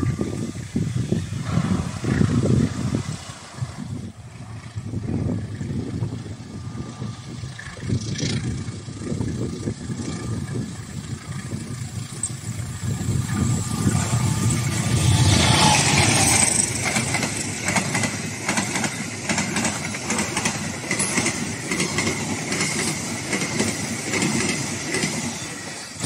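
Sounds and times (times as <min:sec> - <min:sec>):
diesel locomotive passing: 0:00.0 - 0:26.0
wheels clicking over rail joints: 0:07.4 - 0:26.0.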